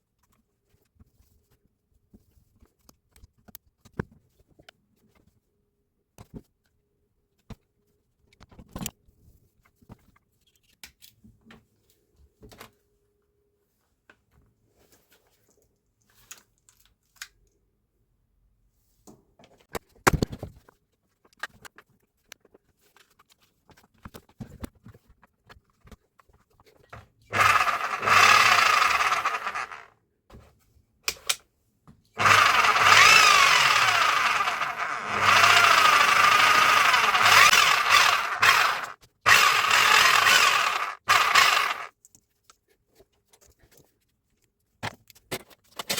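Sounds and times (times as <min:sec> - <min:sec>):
rotary hammer motor running: 0:27.3 - 0:29.9, 0:32.2 - 0:41.9.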